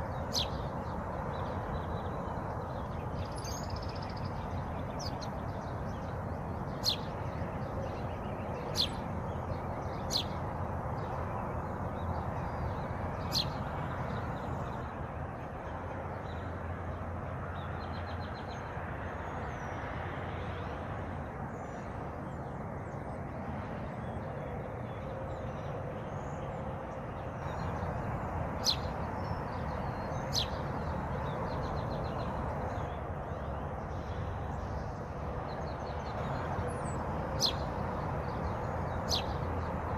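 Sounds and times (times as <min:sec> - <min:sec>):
faint high bird twittering: 0:00.1 - 0:06.1, 0:12.0 - 0:14.8, 0:28.6 - 0:33.0, 0:35.7 - 0:39.5
sharp down-slurred bird chirps: 0:02.8 - 0:05.7.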